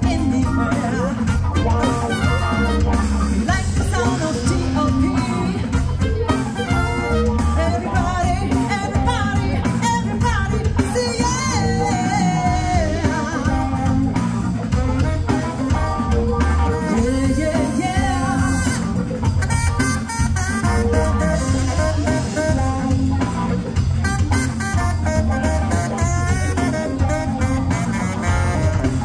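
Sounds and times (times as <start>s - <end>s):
band playing a song: 0.0s - 29.0s
person singing: 3.5s - 6.8s, 16.6s - 18.9s.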